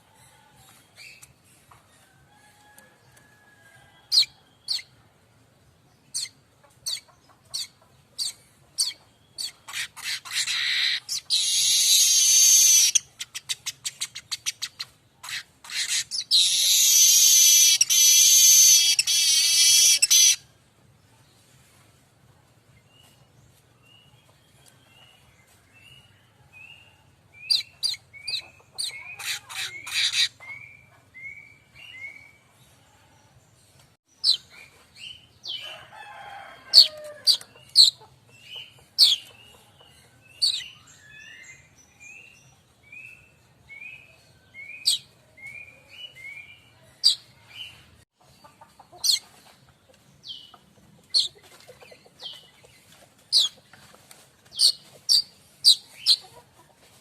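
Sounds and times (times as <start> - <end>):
weaver bird chips: 7.6 - 20.4, 51.1 - 56.4.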